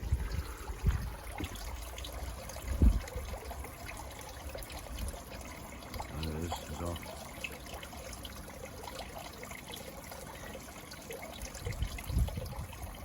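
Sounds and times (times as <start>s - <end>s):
pond waterfall trickling: 0.0s - 13.0s.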